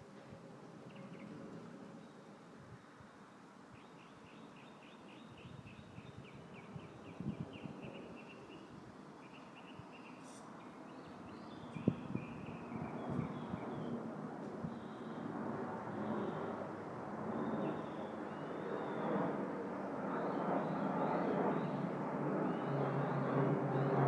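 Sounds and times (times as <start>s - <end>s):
breeze and rustling leaves: 0.0s - 24.0s.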